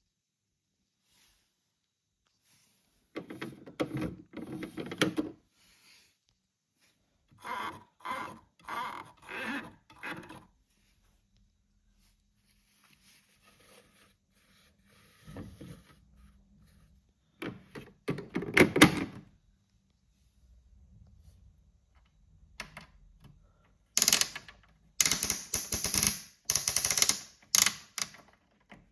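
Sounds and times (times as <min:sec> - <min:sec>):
plastic toy rattling: 0:24.0 - 0:28.2.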